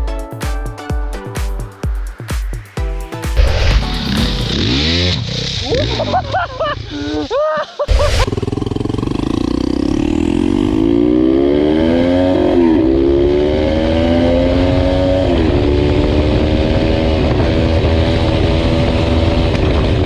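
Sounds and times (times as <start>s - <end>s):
motorcycle engine accelerating: 3.3s - 7.1s, 7.9s - 20.0s.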